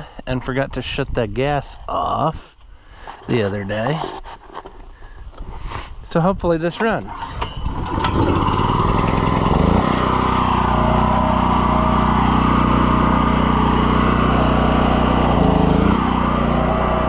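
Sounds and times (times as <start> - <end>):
small gasoline engine running: 7.6 - 17.0.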